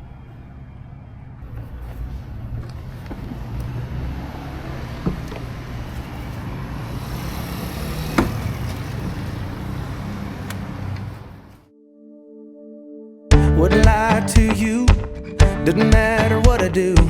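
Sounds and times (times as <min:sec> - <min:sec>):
scooter engine rumble: 0:00.0 - 0:11.6
road and wind noise: 0:00.0 - 0:11.7.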